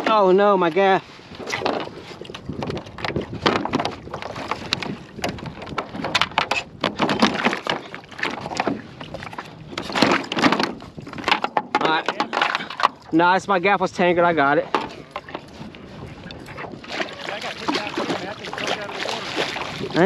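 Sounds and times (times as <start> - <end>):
water and hull noise: 0.0 - 20.0.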